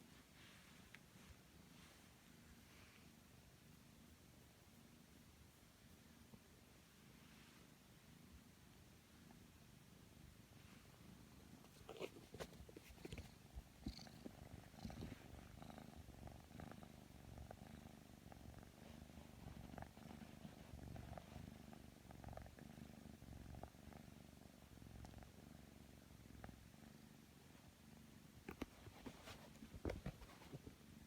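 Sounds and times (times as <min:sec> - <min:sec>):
kitten purring: 0:07.0 - 0:31.0.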